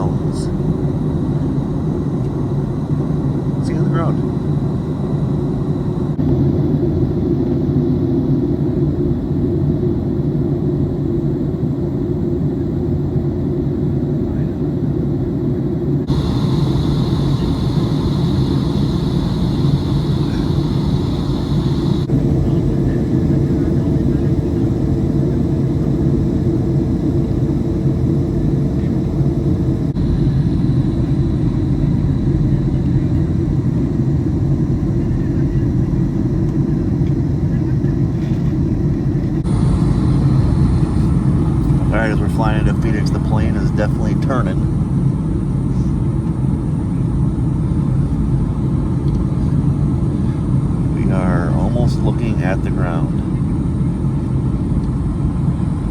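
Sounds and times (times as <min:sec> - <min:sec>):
jet engine rumble in cabin: 0:00.0 - 0:55.9
faint steady hum: 0:16.0 - 0:55.9.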